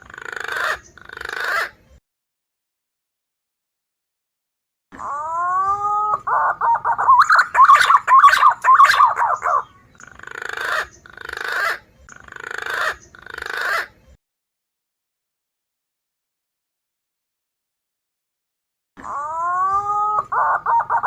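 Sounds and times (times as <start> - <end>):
hoarse rasping bird calls: 5.0 - 14.0, 19.0 - 21.0
pigeon whistled calls: 5.3 - 9.8, 19.4 - 21.0.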